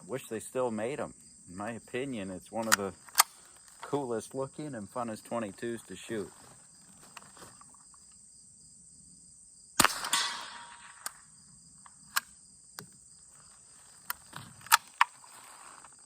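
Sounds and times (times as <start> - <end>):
crickets chirping: 0.0 - 16.0
metallic clicks of rifle action: 2.6 - 4.0, 9.8 - 11.2, 11.8 - 13.0, 14.0 - 15.2
rifle shot: 9.8 - 11.3.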